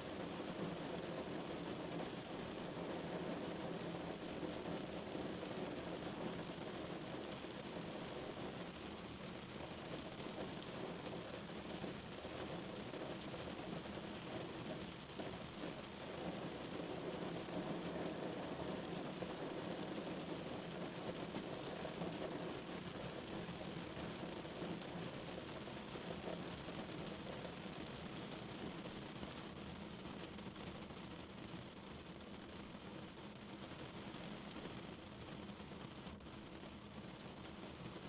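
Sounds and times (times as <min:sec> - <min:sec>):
rain on a car: 0:00.0 - 0:38.0.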